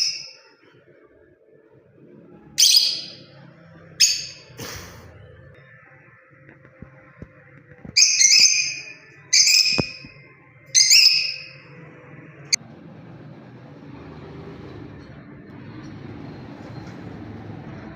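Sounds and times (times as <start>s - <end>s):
bird shrill chirping: 0.0s - 0.4s, 2.6s - 3.4s, 4.0s - 4.6s, 8.0s - 10.1s, 10.8s - 11.6s.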